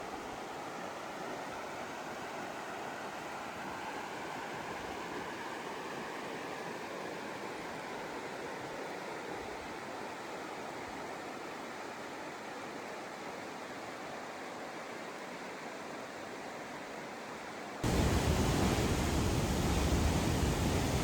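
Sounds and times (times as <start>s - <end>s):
steady rushing noise: 17.8s - 21.0s.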